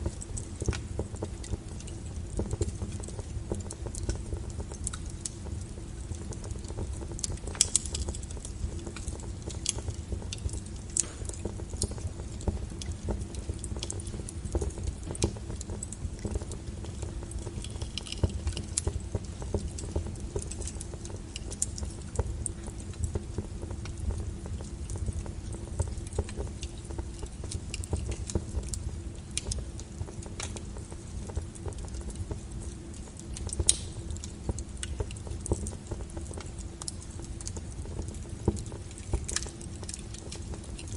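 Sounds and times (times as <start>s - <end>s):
low rumble of burning logs: 0.0s - 40.9s
wood fire crackling and popping: 0.0s - 40.9s.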